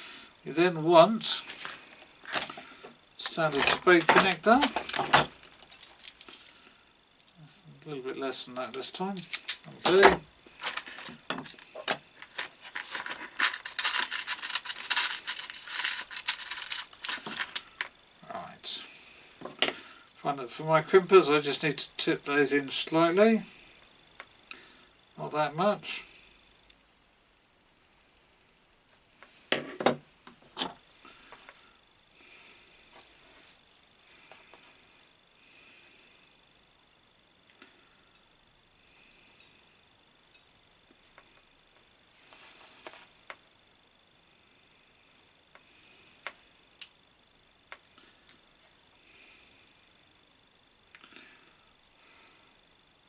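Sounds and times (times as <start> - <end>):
faint high whine: 0.0 - 53.0
soft rubbing and rustling: 8.8 - 17.8, 32.8 - 35.0
wire and hand tools clicking: 9.2 - 17.9.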